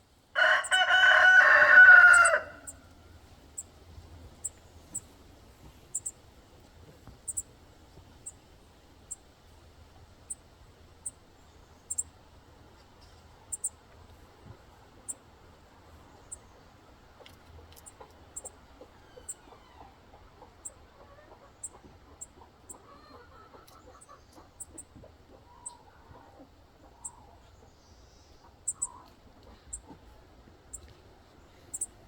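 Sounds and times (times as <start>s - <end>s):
chickens clucking: 16.2s - 30.9s.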